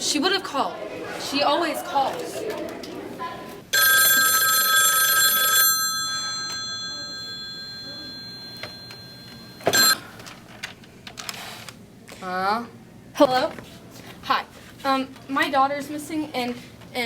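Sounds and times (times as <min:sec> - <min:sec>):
bell-like ringing tone: 0:03.8 - 0:10.0.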